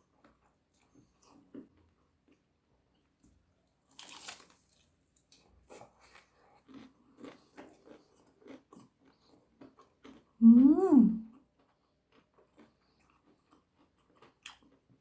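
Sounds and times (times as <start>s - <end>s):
soft chewing crunches: 0.0s - 10.4s, 11.3s - 15.0s
person biting crunchy food: 3.9s - 4.8s.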